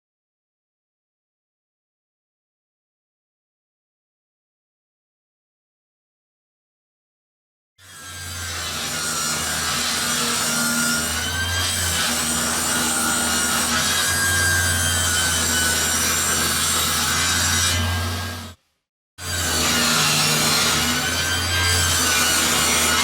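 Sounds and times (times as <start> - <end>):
power saw cutting plywood: 7.8 - 18.6, 19.2 - 23.0.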